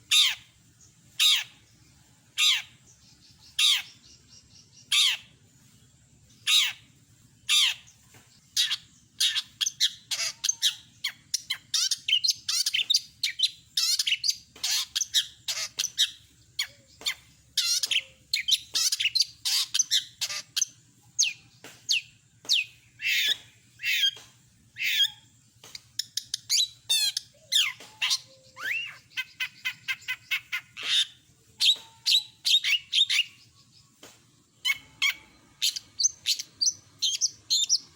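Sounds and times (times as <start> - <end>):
shrike singing: 26.0 - 33.8.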